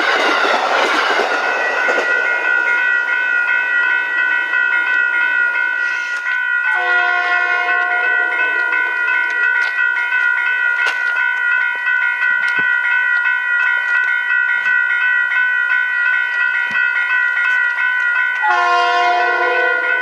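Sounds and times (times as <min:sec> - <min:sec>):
train horn chord: 0:06.7 - 0:09.3, 0:18.4 - 0:20.0.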